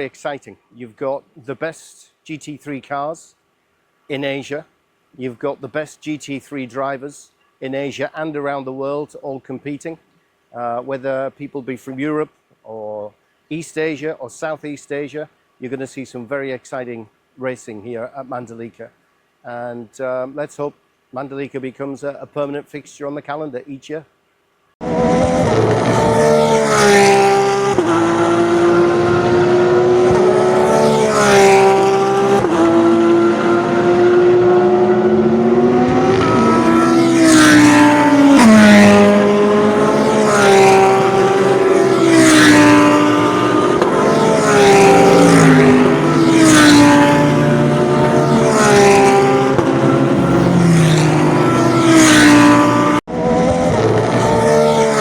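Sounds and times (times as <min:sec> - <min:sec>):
race car engines passing: 0:24.8 - 0:55.0.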